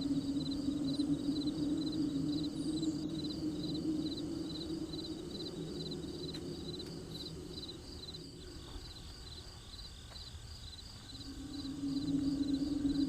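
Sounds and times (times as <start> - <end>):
low steady drone: 0.0 - 9.6, 10.9 - 13.0
crickets chirping: 0.0 - 13.0.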